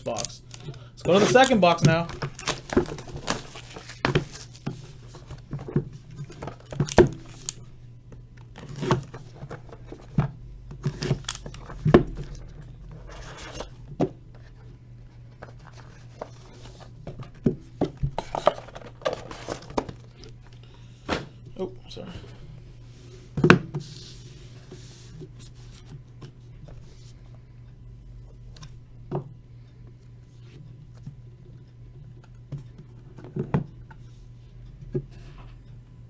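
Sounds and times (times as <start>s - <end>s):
packaging tearing and crinkling: 0.1s - 4.7s.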